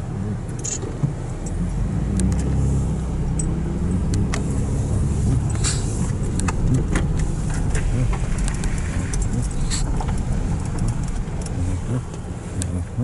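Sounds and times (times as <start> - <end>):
car road and engine rumble: 0.0 - 13.0
small rattles and clicks: 5.4 - 12.7.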